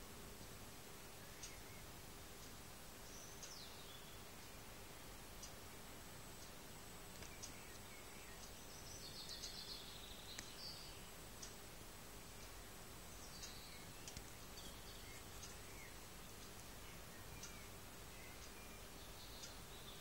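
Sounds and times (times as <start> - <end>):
faint birds chirping: 0.0 - 20.0
steady background hiss: 0.0 - 20.0
soft clicks: 7.1 - 7.8, 10.3 - 10.6, 13.4 - 14.3.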